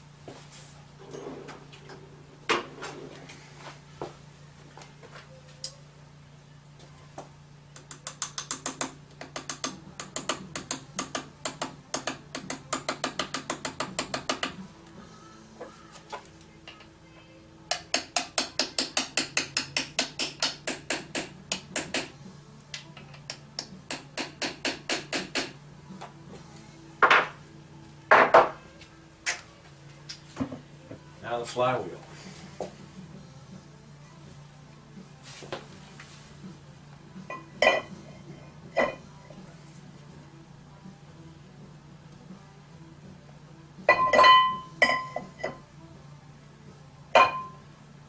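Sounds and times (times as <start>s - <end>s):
rapid metallic tool clicking: 7.8s - 14.4s.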